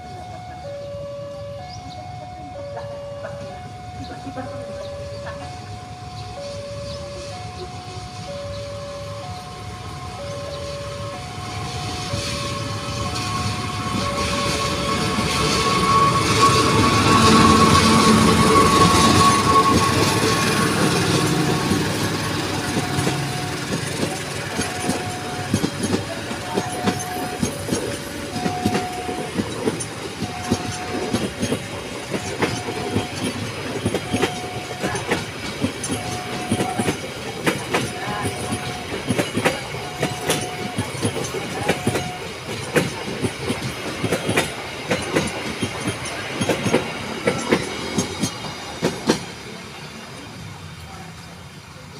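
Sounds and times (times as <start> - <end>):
train passing: 0.0 - 51.9
wagons clattering over rail joints: 11.0 - 49.6.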